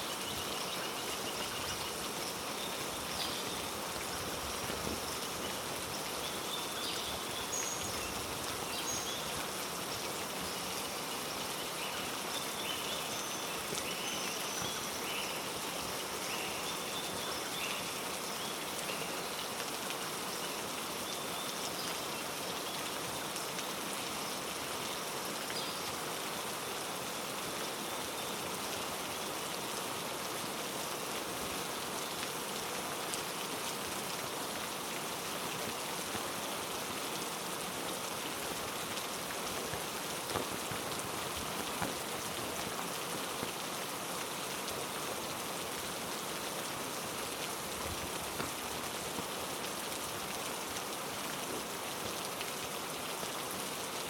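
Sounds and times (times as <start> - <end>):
heavy rain on foliage: 0.0 - 54.0.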